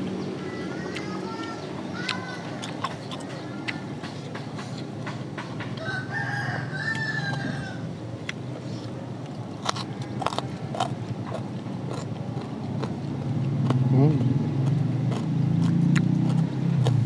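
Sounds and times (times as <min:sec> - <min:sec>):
clicks and smacks of eating: 0:00.4 - 0:05.9, 0:08.2 - 0:08.5, 0:09.2 - 0:17.0
rooster crowing: 0:05.8 - 0:07.9, 0:09.7 - 0:11.0.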